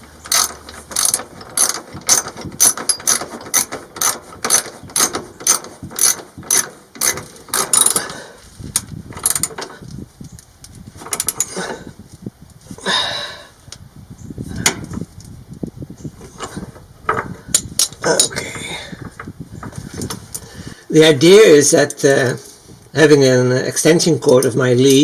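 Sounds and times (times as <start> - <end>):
ratchet wrench clicking: 0.2 - 8.1, 8.8 - 9.7.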